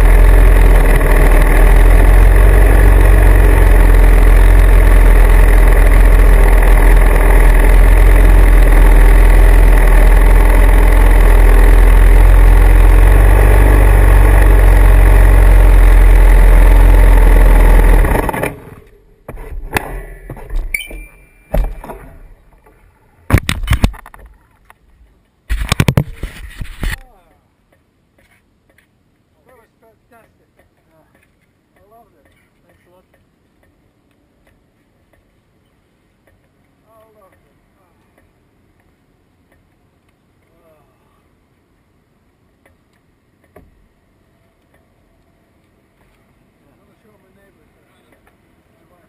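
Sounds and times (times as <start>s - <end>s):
motorcycle engine running: 0.0s - 22.6s.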